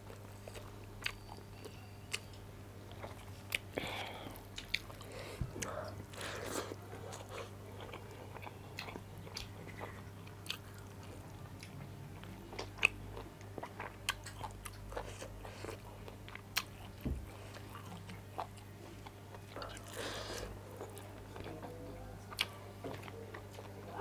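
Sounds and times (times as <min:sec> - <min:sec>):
chewing and biting: 0:04.3 - 0:21.6.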